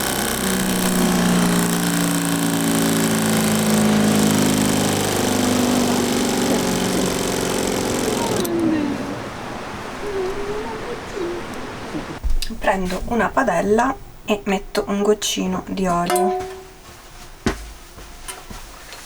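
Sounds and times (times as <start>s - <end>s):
machine motor humming: 0.0s - 11.2s.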